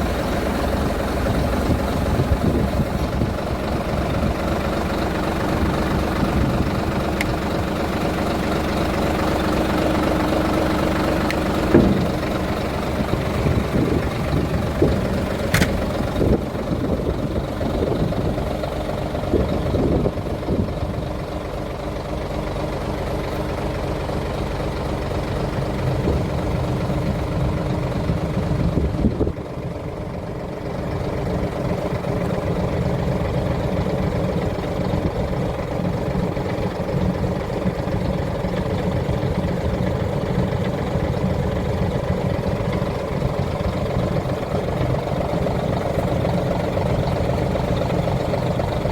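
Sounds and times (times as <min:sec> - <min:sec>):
truck diesel engine idling: 0:00.0 - 0:48.9
short knocks and clicks: 0:11.3 - 0:12.6.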